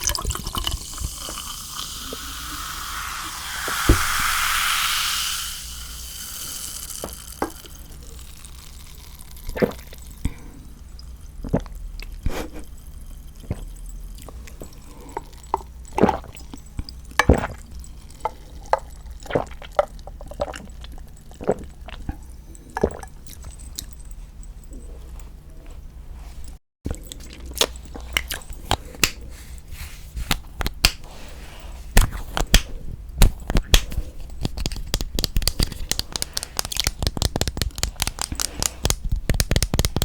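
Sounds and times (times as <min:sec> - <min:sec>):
loud hiss: 0:01.5 - 0:07.1
wet sticky eating clicks: 0:33.5 - 0:40.0.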